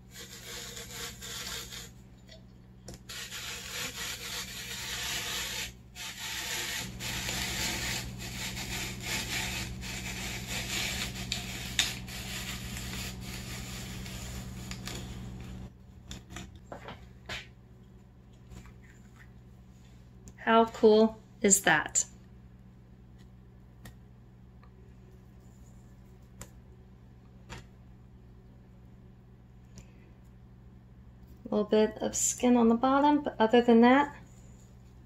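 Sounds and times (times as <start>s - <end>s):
apple peeler scraping: 0.0s - 15.7s.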